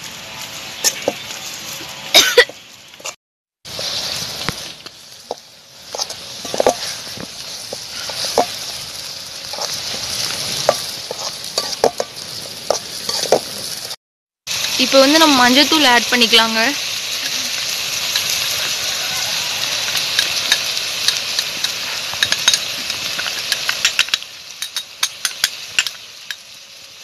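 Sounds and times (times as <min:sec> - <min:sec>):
vegetables sizzling in a pan: 0:00.0 - 0:27.0
metal ladle scraping a pan: 0:05.9 - 0:08.8, 0:09.4 - 0:13.6.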